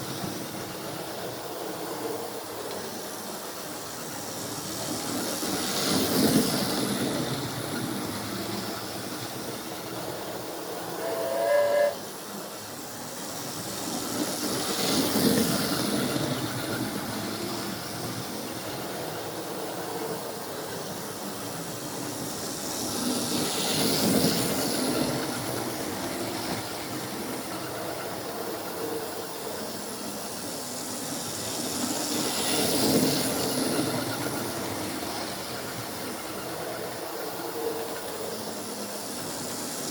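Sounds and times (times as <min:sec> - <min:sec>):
model steam locomotive hissing: 0:00.0 - 0:39.9
steam whistle blast: 0:10.9 - 0:12.2.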